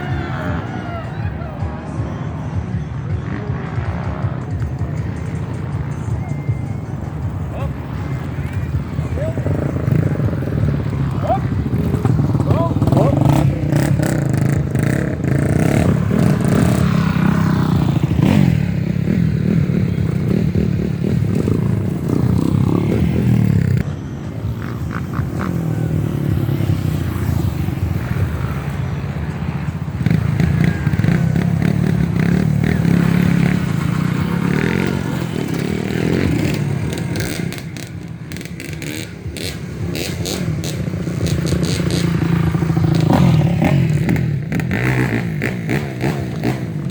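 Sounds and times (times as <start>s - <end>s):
motorcycle engines revving: 0.0s - 46.9s.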